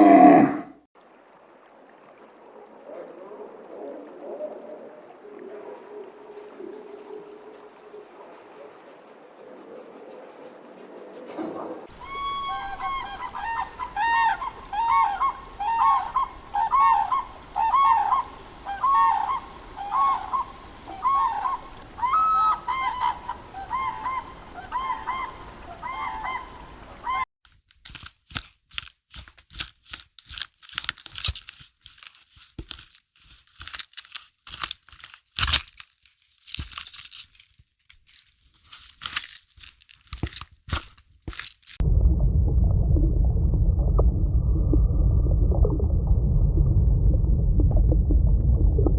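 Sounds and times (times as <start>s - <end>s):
geese honking: 11.9s - 27.2s
sharp crunching clicks: 27.6s - 41.8s.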